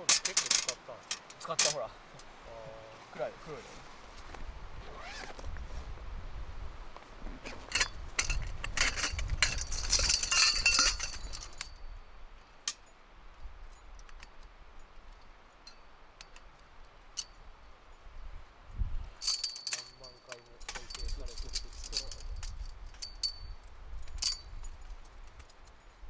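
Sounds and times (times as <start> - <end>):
metal objects clinking and scraping: 0.0 - 1.9, 7.5 - 11.8, 19.2 - 23.4.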